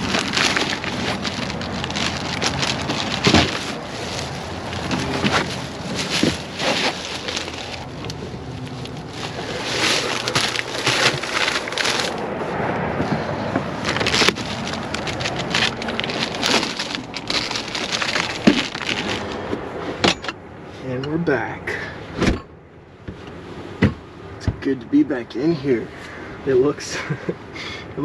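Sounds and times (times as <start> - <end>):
plastic bottles and bag crinkling: 0.0 - 12.4, 13.7 - 19.5.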